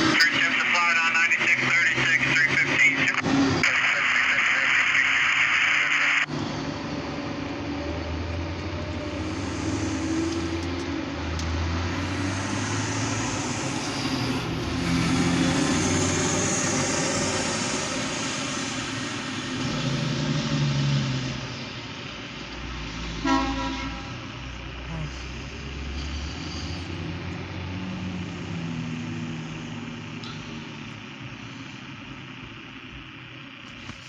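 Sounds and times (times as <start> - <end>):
diesel locomotive engine rumble: 0.0 - 34.0
wide hiss: 8.9 - 10.8, 11.9 - 20.5.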